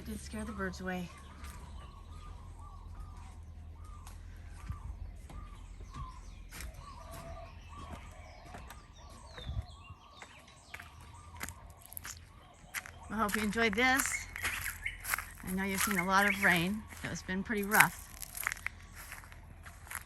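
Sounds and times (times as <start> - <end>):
birds calling repeated notes: 0.0 - 20.0
steady low rumble: 0.0 - 20.0.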